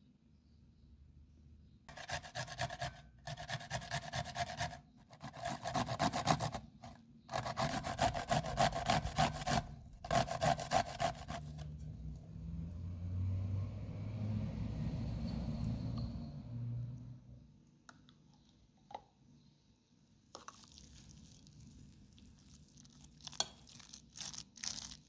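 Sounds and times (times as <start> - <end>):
food scraping on metal grater: 1.9 - 12.0.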